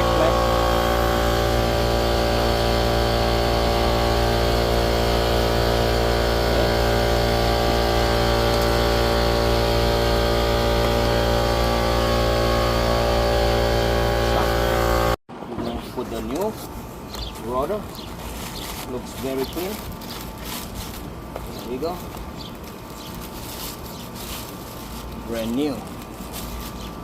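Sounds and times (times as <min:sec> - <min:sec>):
motor humming steadily: 0:00.0 - 0:15.2.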